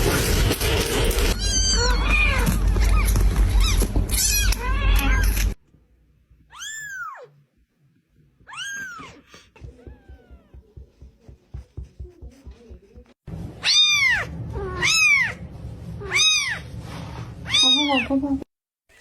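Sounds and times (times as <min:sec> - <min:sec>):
cat meowing: 0:01.4 - 0:05.3, 0:06.5 - 0:07.4, 0:08.5 - 0:10.6, 0:13.6 - 0:15.4, 0:16.0 - 0:16.6, 0:17.4 - 0:18.1.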